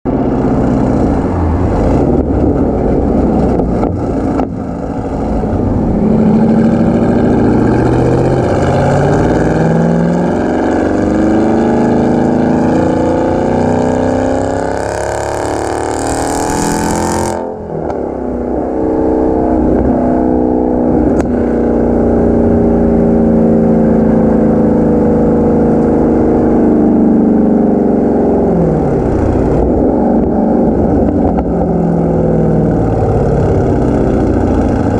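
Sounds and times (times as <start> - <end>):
car engine accelerating: 0.1 - 34.9.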